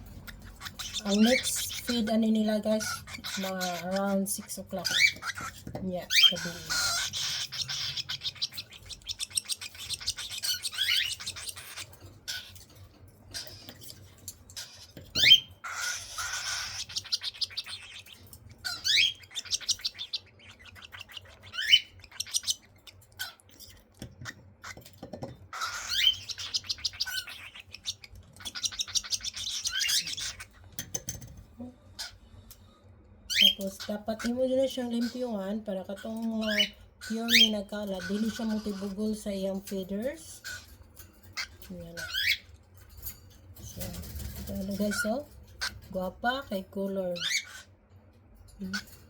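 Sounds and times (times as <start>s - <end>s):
cockatiels raspy chirping: 0.0s - 24.9s, 25.5s - 30.7s, 32.0s - 32.2s, 33.3s - 39.2s, 40.2s - 43.2s, 44.1s - 45.9s, 46.5s - 47.7s.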